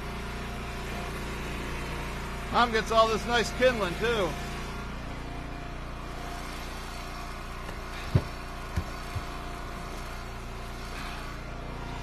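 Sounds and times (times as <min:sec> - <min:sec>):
wood splitter gas engine running: 0:00.0 - 0:12.0
firewood pieces knocking: 0:07.7 - 0:09.4.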